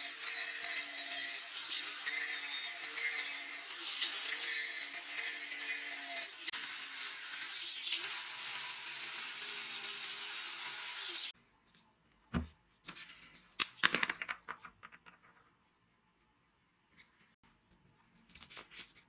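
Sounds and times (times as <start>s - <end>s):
power tool high whine: 0.0s - 11.3s
clicks and knocks of handling: 13.5s - 15.6s.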